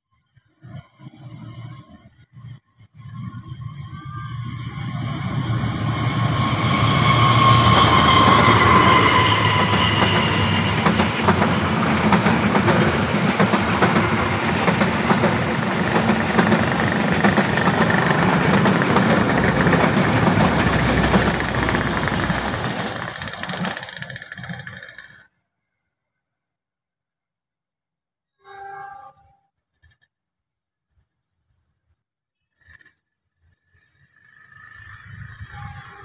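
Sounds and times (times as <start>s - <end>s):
locomotive engine whine: 3.3s - 12.9s, 13.7s - 25.1s
train wheels clattering on rails: 6.3s - 25.2s.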